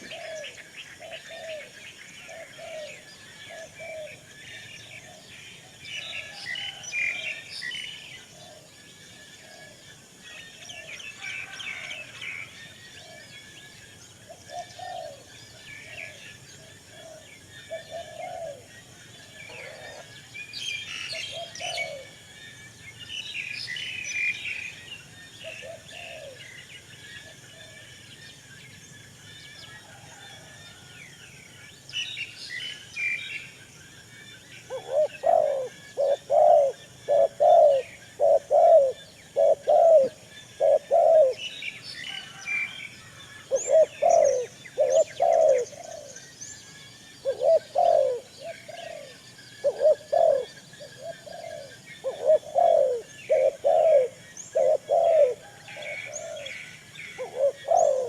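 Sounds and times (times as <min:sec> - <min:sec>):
pigeons cooing: 0:00.0 - 0:04.3, 0:14.3 - 0:16.2, 0:16.9 - 0:20.2, 0:21.1 - 0:22.2, 0:25.4 - 0:26.4, 0:34.7 - 0:41.4, 0:43.5 - 0:46.2, 0:47.2 - 0:58.0
small birds chirping: 0:31.5 - 0:42.4, 0:43.0 - 0:58.0.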